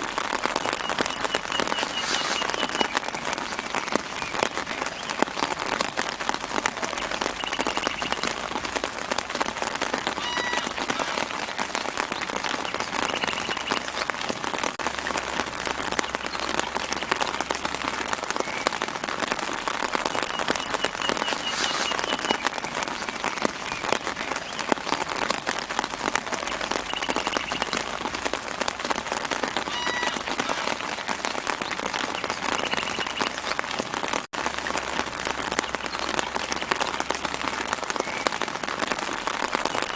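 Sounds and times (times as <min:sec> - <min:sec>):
rain on tree leaves: 0:00.0 - 0:39.9
faint bird calls: 0:00.9 - 0:05.1, 0:10.2 - 0:11.5, 0:29.7 - 0:30.9.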